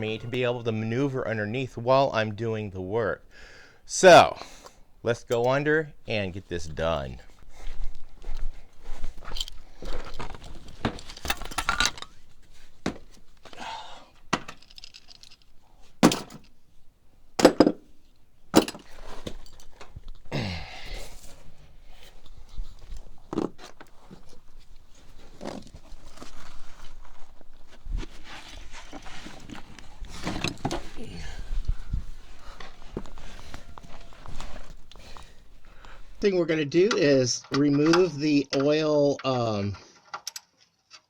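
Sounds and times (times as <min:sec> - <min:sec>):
tools knocking and clinking: 0:05.2 - 0:05.6, 0:09.2 - 0:13.6, 0:14.2 - 0:16.6, 0:17.4 - 0:20.2, 0:29.4 - 0:31.6.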